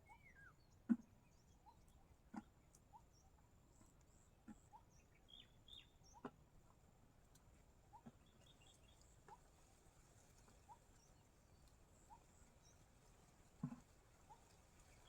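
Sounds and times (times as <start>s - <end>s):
bird chirps: 4.7s - 6.3s
soft sharp ticks: 7.2s - 7.5s.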